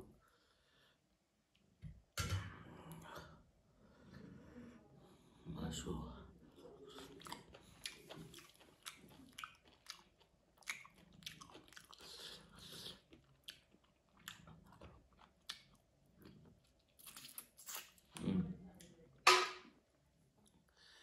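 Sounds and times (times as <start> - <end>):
person chewing food: 6.8 - 18.2.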